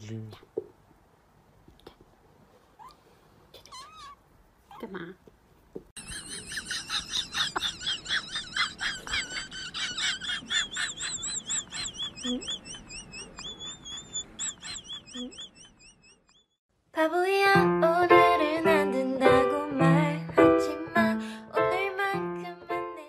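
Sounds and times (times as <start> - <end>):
rapid high-pitched warbling chirps: 10.6 - 16.6.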